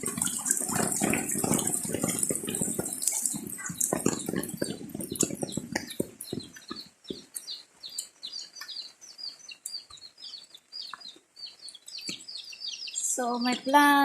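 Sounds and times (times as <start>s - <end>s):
water splashing and dripping: 0.0s - 8.8s
birds chirping: 0.0s - 14.0s.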